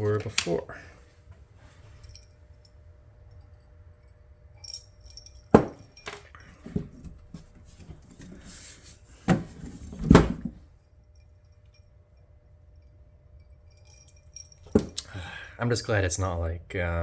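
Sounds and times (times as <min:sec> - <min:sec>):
tools knocking on a workbench: 0:05.6 - 0:07.1.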